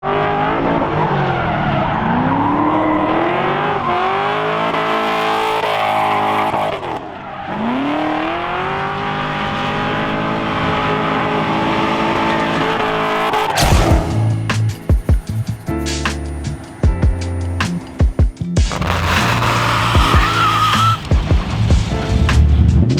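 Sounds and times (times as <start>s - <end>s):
truck engine revving hard: 0.0s - 14.3s, 18.7s - 22.3s
loud thump: 13.6s - 14.2s
tyres squealing: 18.7s - 21.2s.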